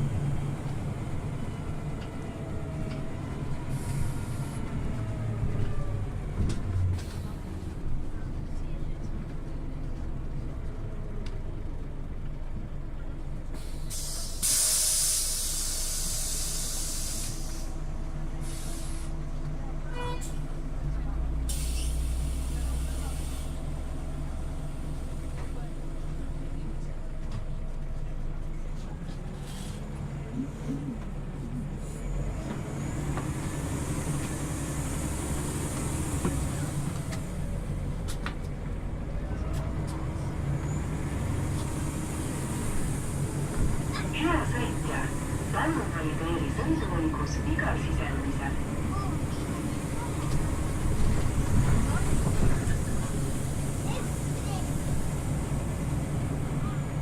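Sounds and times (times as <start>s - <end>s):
bus low hum: 0.0s - 57.0s
road noise: 0.0s - 57.0s
compressed air hissing: 13.7s - 17.8s.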